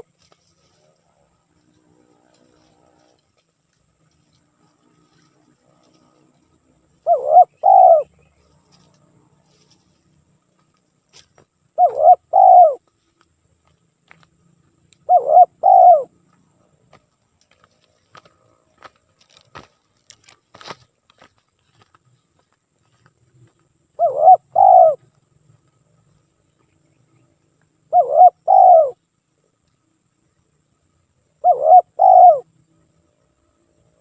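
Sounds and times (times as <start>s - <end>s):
dove cooing: 6.8s - 8.2s, 11.8s - 12.8s, 15.0s - 16.2s, 24.0s - 25.2s, 27.9s - 29.0s, 31.4s - 32.5s.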